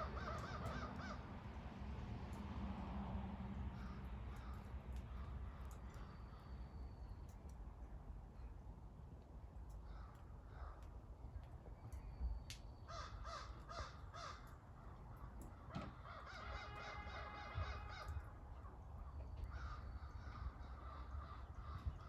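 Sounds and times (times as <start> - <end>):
crows cawing: 0.0 - 1.3, 3.8 - 6.4, 9.8 - 10.9, 12.9 - 18.7, 19.4 - 22.0.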